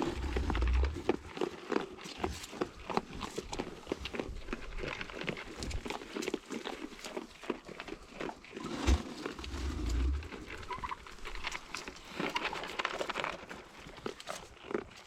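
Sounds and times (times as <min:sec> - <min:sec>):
low rumble: 0:00.0 - 0:01.1
animals pecking and crunching: 0:00.0 - 0:15.0.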